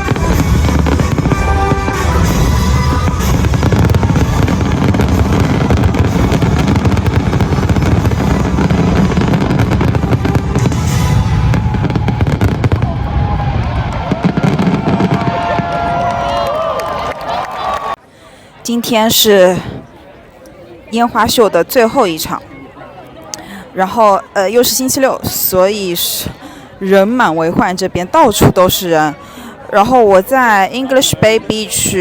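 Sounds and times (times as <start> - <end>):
music playing: 0.0 - 11.6
fireworks booming and crackling: 0.0 - 16.3.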